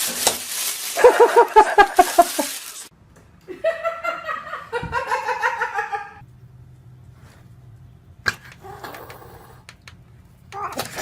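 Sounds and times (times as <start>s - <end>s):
person laughing: 1.0s - 2.6s.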